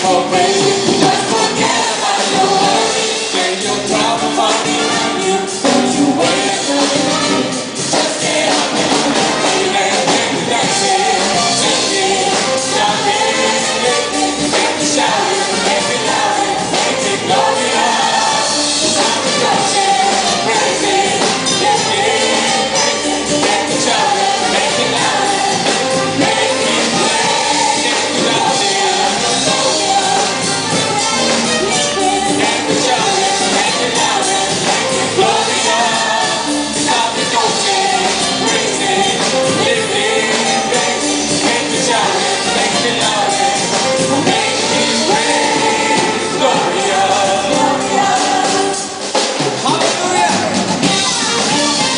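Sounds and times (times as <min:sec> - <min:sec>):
choir singing: 0:00.0 - 0:51.9
upbeat worship song with band: 0:00.0 - 0:51.9.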